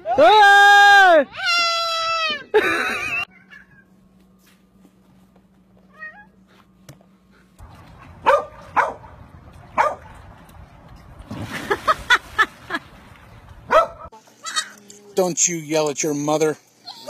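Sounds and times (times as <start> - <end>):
dog barking: 8.2 - 9.1, 9.8 - 10.1, 13.7 - 14.1
dog splashing into pool: 11.2 - 13.2.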